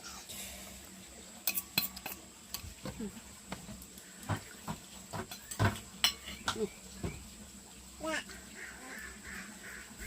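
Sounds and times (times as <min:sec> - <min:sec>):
utensils clinking against bowls: 0:01.4 - 0:02.6, 0:05.2 - 0:06.7.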